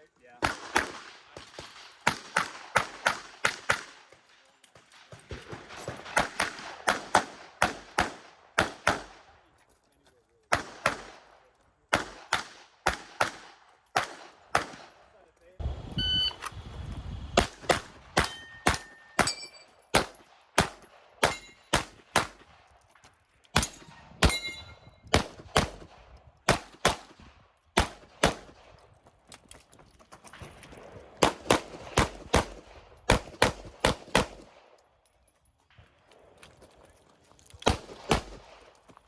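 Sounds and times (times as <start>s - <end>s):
pistol shots: 0.4s - 4.2s, 5.0s - 9.3s, 10.5s - 15.1s, 17.4s - 22.7s, 23.5s - 28.7s, 31.2s - 34.7s, 37.6s - 38.8s
steel targets ringing: 18.2s - 19.8s, 21.2s - 21.7s, 23.6s - 25.0s.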